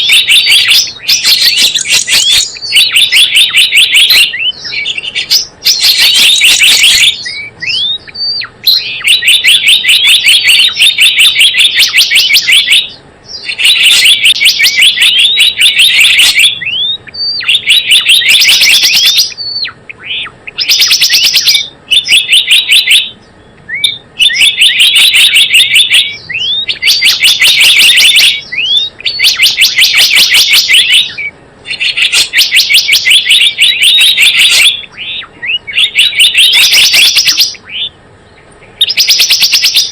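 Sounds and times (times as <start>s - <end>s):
bird chattering chirps: 0.0s - 39.9s
bird rising call notes: 0.0s - 39.9s.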